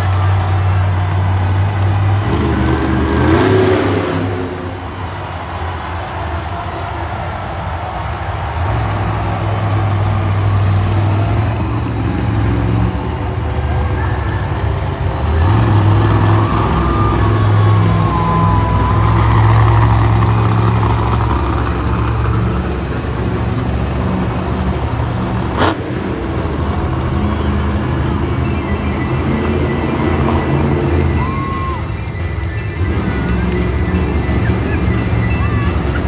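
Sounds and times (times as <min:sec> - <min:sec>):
truck engine droning and revving: 0:00.0 - 0:36.0.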